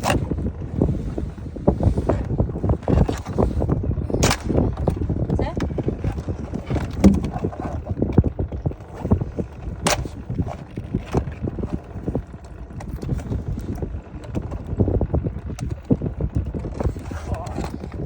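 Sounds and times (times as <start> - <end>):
low rumble: 0.0 - 18.0
hard objects clicking and knocking: 4.2 - 8.2.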